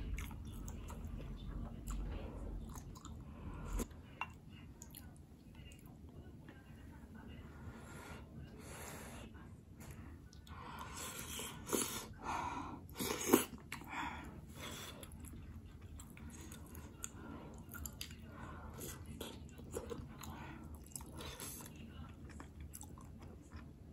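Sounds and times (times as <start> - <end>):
person chewing: 0.0 - 5.1, 12.9 - 13.9, 14.6 - 23.7.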